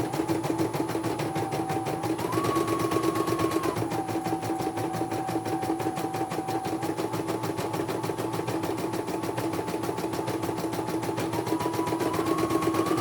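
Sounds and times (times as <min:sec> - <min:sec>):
motor hum: 0:10.9 - 0:13.0.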